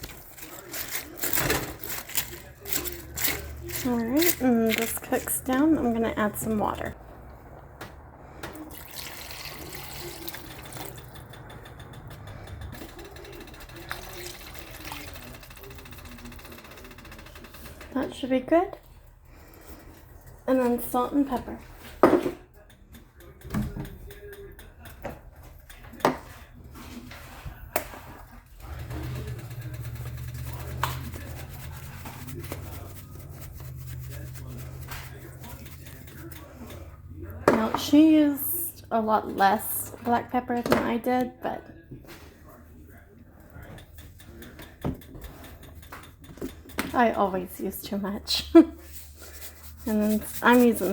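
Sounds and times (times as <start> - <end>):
pepper grinder grinding: 0.0 - 6.0
water pouring into a pot: 8.6 - 11.1, 13.8 - 15.7.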